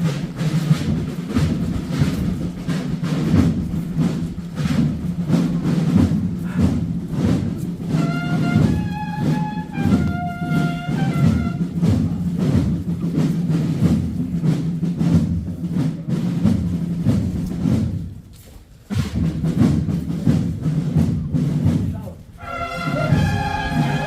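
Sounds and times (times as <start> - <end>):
marching drum beat: 0.0 - 24.0
brass long held notes: 7.9 - 11.9, 22.4 - 24.0.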